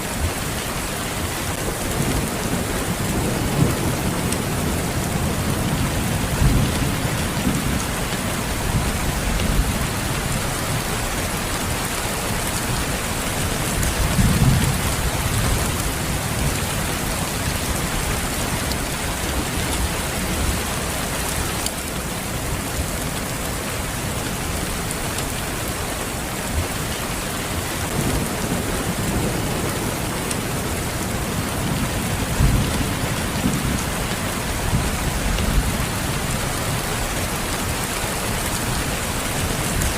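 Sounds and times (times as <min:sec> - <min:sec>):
steady rain: 0:00.0 - 0:39.9
low rumbles of thunder: 0:13.7 - 0:18.7, 0:27.8 - 0:37.2.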